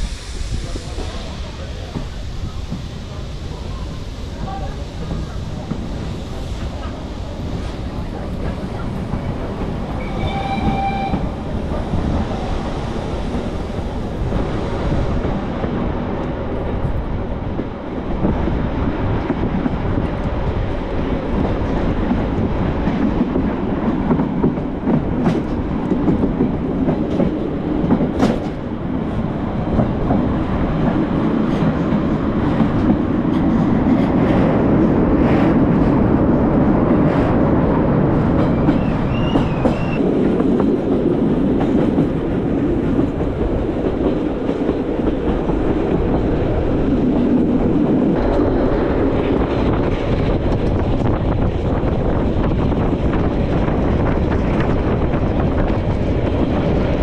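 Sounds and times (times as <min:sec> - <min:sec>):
train wheels rumbling on rail: 0:00.0 - 0:57.0
high wheel squeal: 0:10.0 - 0:11.5.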